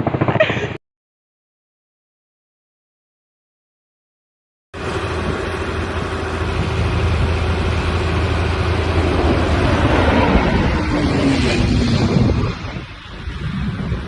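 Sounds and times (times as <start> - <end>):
heavy engine running: 4.8 - 14.0.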